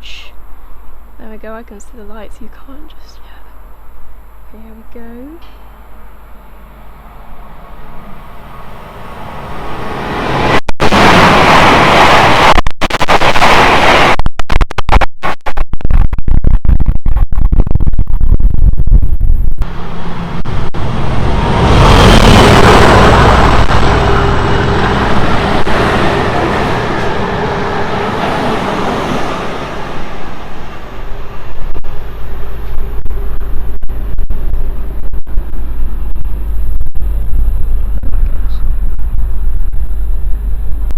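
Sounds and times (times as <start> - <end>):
train passing at speed: 5.7 - 12.5, 19.6 - 32.8.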